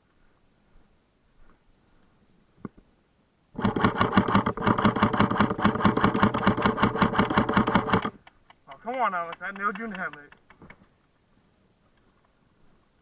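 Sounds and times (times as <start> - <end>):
airsoft rifle full-auto burst: 3.6 - 8.2
gun mechanism whirr: 3.6 - 8.2.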